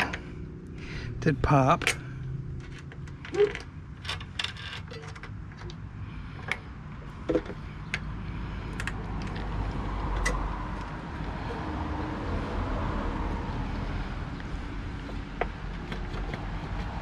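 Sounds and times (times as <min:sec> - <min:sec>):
tools and metal parts clinking: 0:01.6 - 0:05.8.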